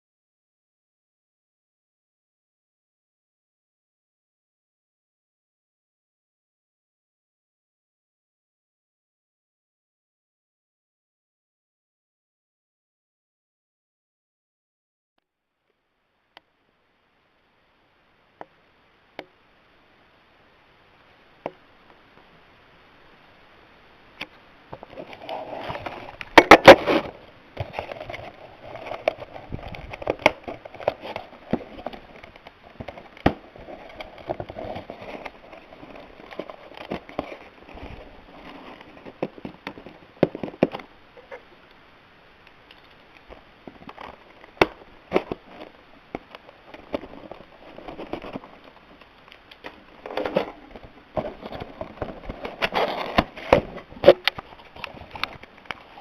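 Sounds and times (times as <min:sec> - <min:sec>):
sharp clicks and snaps: 0:48.6 - 0:50.3.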